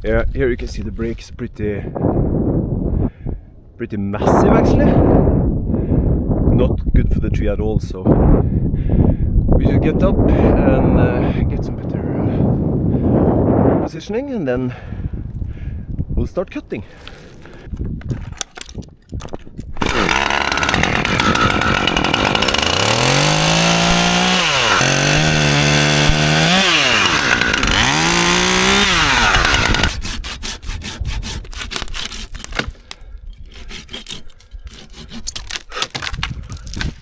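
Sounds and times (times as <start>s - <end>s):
chainsaw cutting: 19.7s - 32.9s, 33.5s - 37.0s.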